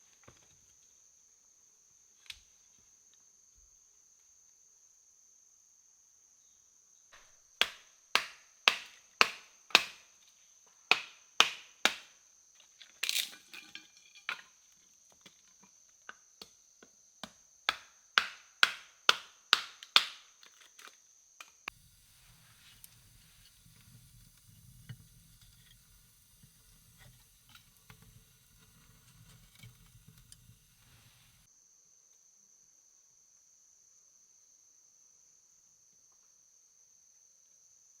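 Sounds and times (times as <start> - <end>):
tool knocking on wood: 7.6 - 10.0.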